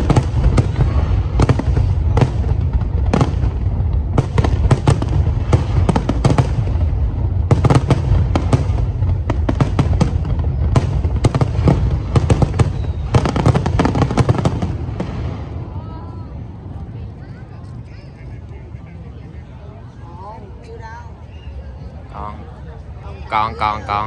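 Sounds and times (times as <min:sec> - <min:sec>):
fireworks bangs and crackling: 0:00.0 - 0:17.0
steady low rumble: 0:00.0 - 0:20.6.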